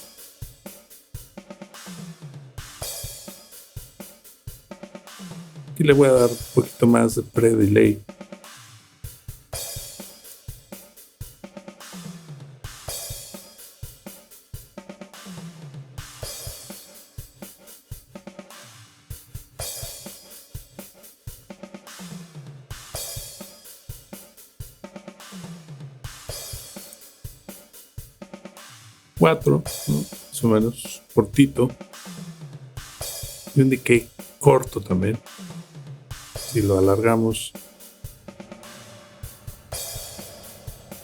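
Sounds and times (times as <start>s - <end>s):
drum kit groove: 0.0s - 41.0s
cymbal crash: 37.8s - 41.0s.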